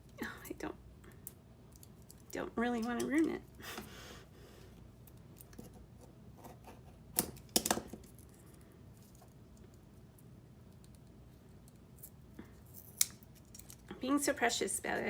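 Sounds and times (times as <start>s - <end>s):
low room noise: 0.0s - 15.0s.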